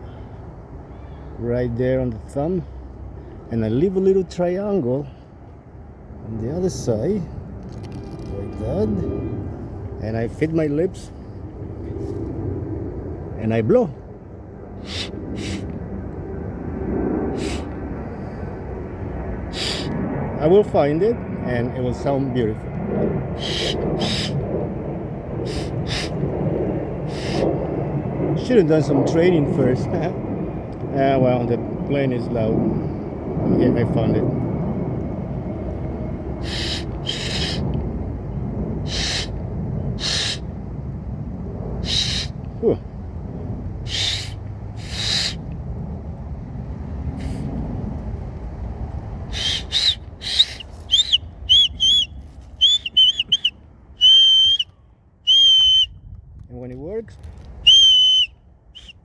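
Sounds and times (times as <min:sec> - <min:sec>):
airplane passing low rumble: 0:00.0 - 0:59.0
breathy blows of air: 0:14.6 - 0:16.2, 0:17.3 - 0:20.1, 0:23.3 - 0:28.1, 0:35.2 - 0:40.7, 0:41.7 - 0:42.7, 0:43.8 - 0:45.6, 0:47.0 - 0:48.2, 0:49.2 - 0:54.5
shrill whistle blasts: 0:49.4 - 0:54.7, 0:55.3 - 0:56.0, 0:57.6 - 0:59.0.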